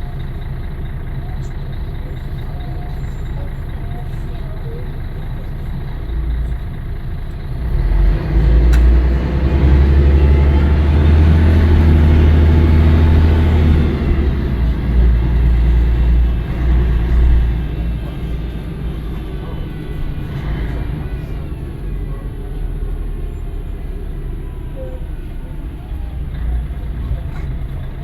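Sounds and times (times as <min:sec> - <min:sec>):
bus diesel engine under load: 0:00.0 - 0:28.0.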